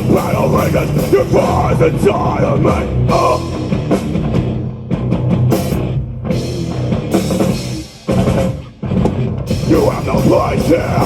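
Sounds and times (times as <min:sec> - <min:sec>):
person singing: 0:00.0 - 0:03.8, 0:09.6 - 0:11.0
metal band playing: 0:00.0 - 0:11.0.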